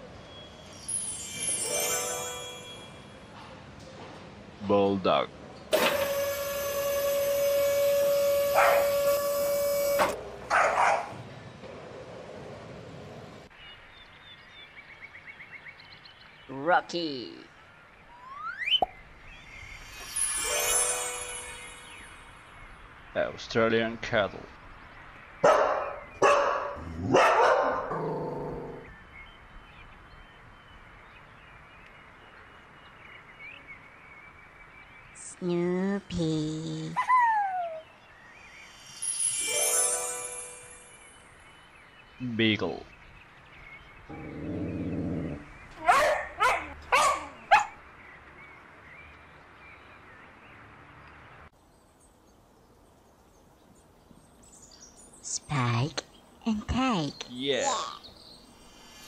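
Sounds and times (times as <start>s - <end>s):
dog barking: 8.6s - 9.0s, 10.5s - 11.2s, 25.4s - 28.1s, 45.8s - 47.8s
dog growling: 44.1s - 45.5s.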